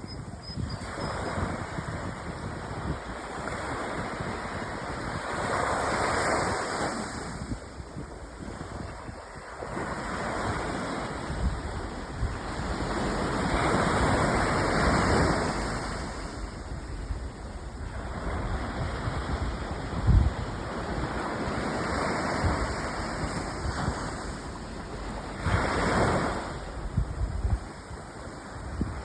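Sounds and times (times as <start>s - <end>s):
wind on microphone: 0.0s - 29.0s
ocean waves breaking: 0.8s - 29.0s.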